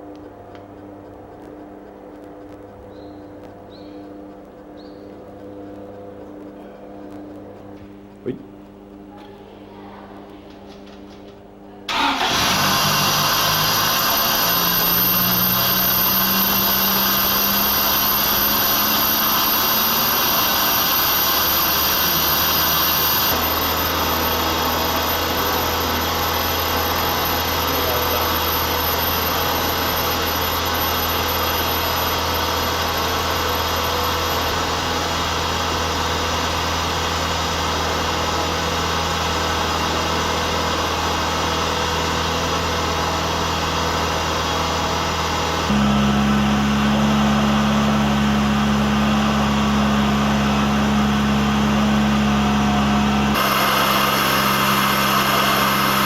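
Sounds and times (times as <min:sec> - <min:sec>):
car engine idling: 0:11.9 - 0:56.0.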